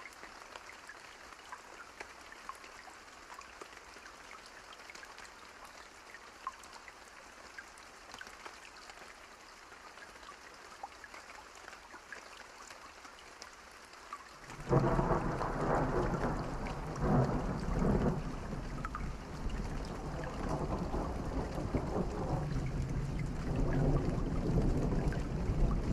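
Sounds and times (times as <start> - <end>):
light rain falling: 0.0 - 25.9
thunder rumbling: 14.6 - 25.9.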